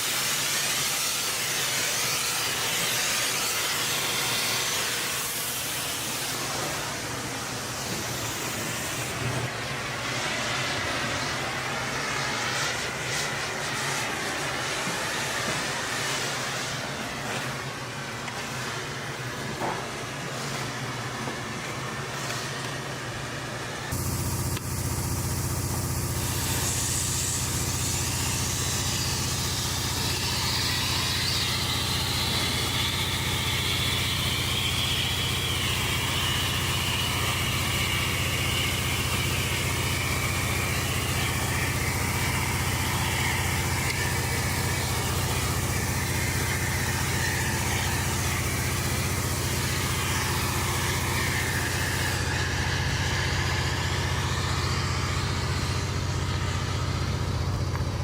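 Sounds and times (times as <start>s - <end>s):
wavering high hiss: 23.9s - 57.6s
engine idling: 23.9s - 58.0s.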